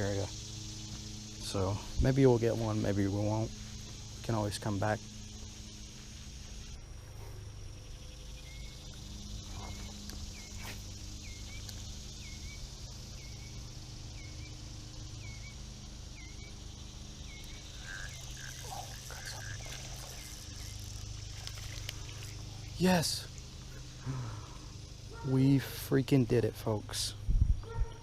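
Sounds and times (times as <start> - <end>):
steady high hiss: 0.0 - 27.4
low outdoor rumble: 0.0 - 28.0
small animal chirping: 17.3 - 22.4.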